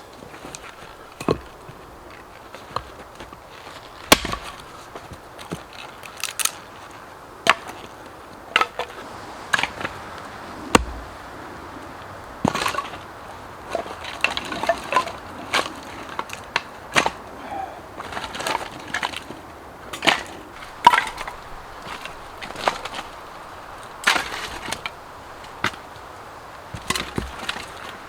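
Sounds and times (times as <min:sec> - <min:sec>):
axe chopping wood: 0:03.9 - 0:04.8, 0:10.7 - 0:11.1, 0:20.0 - 0:23.1, 0:24.0 - 0:25.0, 0:26.7 - 0:27.9.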